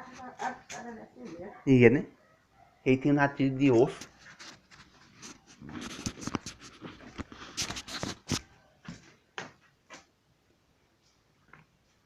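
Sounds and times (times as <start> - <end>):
dog barking: 1.4 - 2.9.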